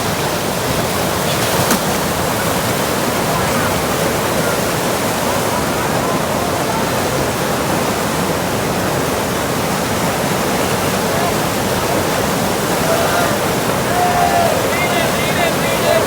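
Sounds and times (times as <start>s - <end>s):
whitewater rapids rushing: 0.0s - 16.0s.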